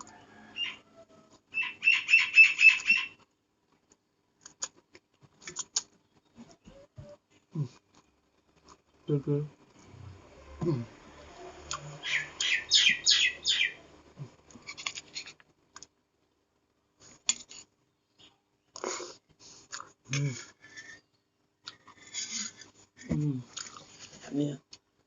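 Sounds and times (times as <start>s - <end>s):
person humming: 7.5s - 7.8s, 10.6s - 11.0s, 20.1s - 20.5s, 23.1s - 23.5s.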